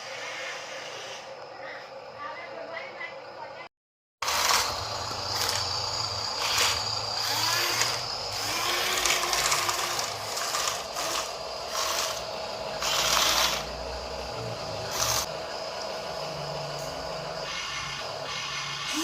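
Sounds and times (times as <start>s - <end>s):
small electric motors whirring: 0.0s - 1.5s, 4.2s - 19.0s.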